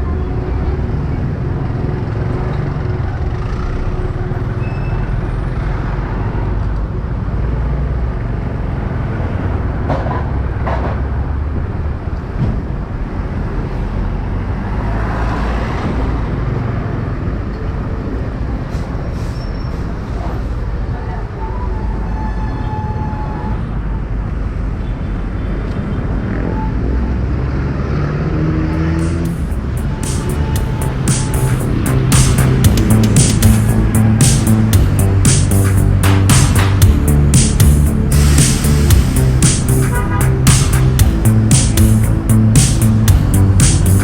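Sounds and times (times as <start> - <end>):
other vehicles: 0.0 - 44.0
wind and road noise: 0.0 - 44.0
brief sharp sounds: 28.8 - 44.0
motorcycle engine rumble: 28.8 - 44.0.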